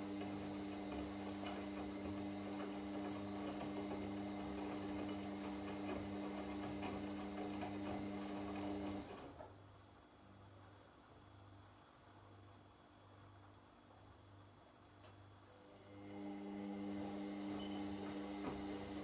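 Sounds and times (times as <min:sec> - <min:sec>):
washing machine motor humming: 0:00.0 - 0:09.3, 0:15.8 - 0:19.0.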